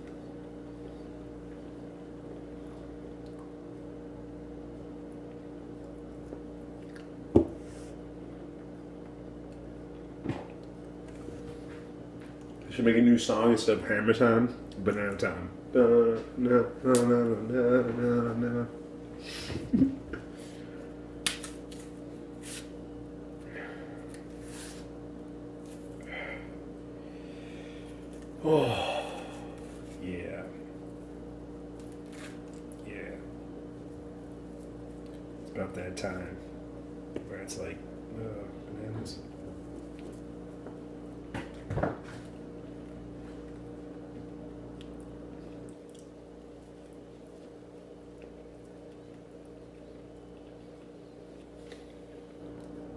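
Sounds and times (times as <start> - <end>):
man chewing banana: 0.0 - 11.5, 42.2 - 52.9
soft squishes of eating: 0.0 - 12.7, 20.1 - 28.4, 29.2 - 35.8, 39.2 - 52.9
steady low hum: 0.0 - 52.9.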